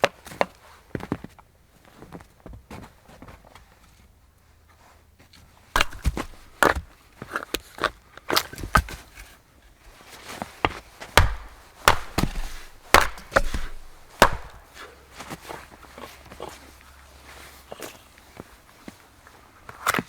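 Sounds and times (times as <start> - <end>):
axe chopping wood: 5.8 - 6.9, 11.1 - 15.3.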